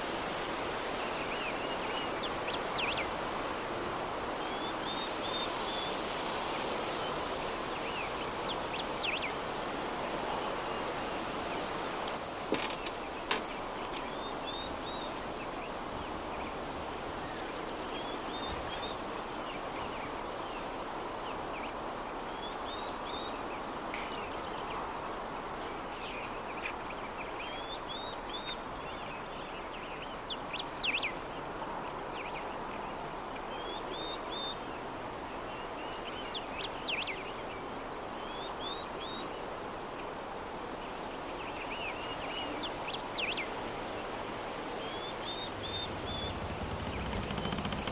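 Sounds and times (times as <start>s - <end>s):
soft breeze blowing: 0.0s - 47.9s
small birds chirping: 44.5s - 47.9s.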